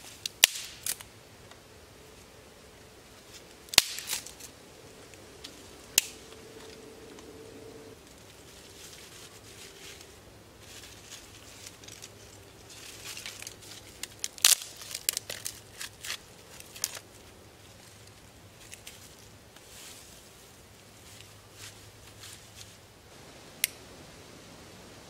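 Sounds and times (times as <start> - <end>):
dry twigs rustling: 0.0 - 24.2
dry sticks snapping: 0.2 - 1.6, 3.3 - 7.3, 11.2 - 17.0.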